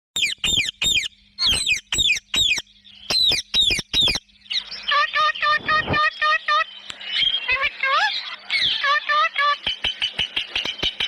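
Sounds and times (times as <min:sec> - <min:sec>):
parrot harsh calls: 0:07.6 - 0:09.6.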